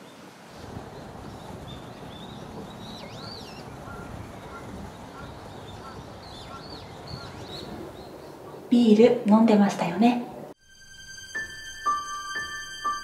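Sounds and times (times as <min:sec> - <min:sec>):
birds chirping: 0:00.0 - 0:09.0
outdoor background hiss: 0:00.0 - 0:13.0
whistled bird calls: 0:01.3 - 0:08.3.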